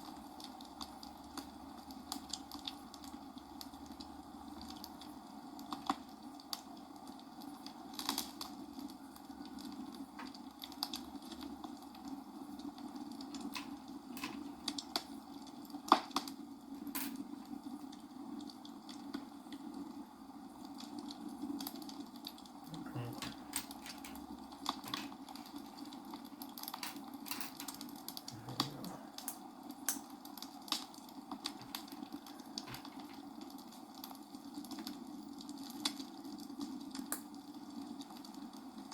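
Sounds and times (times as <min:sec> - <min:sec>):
steady background hum: 0:00.0 - 0:38.9
plastic bricks clicking together: 0:13.3 - 0:14.9, 0:23.2 - 0:25.6, 0:26.4 - 0:27.9.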